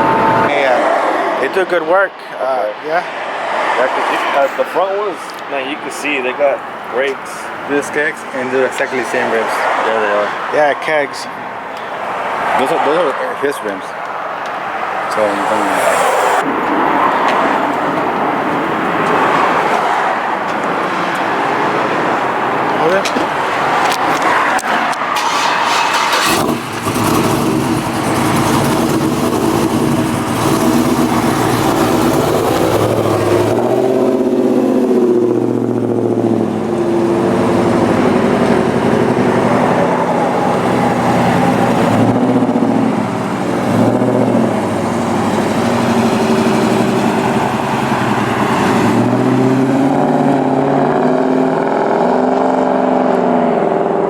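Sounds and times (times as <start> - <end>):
vehicle engine revving: 14.7 - 54.0.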